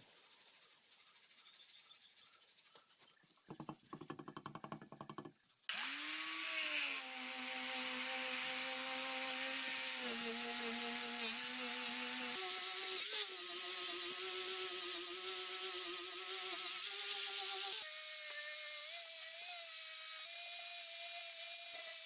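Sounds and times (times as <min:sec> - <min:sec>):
power tool motor whining: 0:05.7 - 0:13.4.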